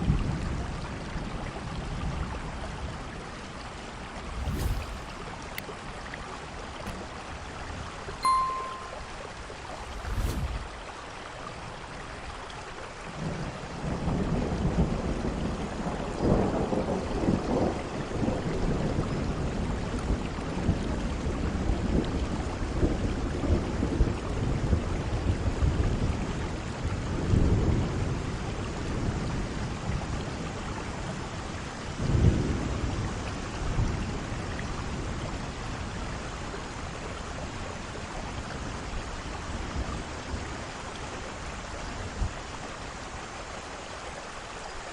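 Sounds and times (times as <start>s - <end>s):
heavy rain: 0.0s - 44.9s
thunder rumbling: 4.1s - 5.6s.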